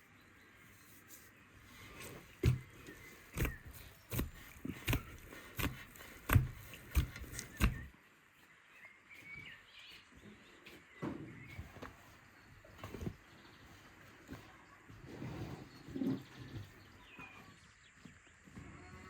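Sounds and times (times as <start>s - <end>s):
faint bird chirps: 7.4s - 19.0s.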